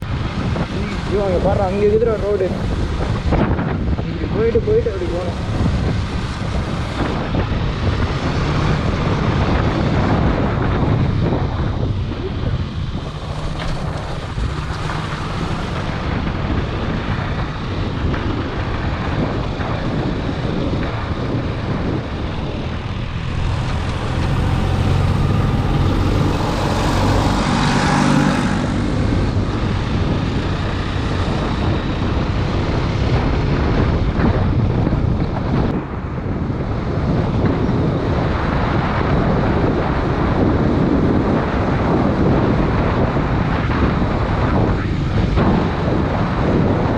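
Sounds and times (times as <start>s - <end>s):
motorcycle engine running: 0.0s - 35.7s
wind buffeting microphone: 0.0s - 46.9s.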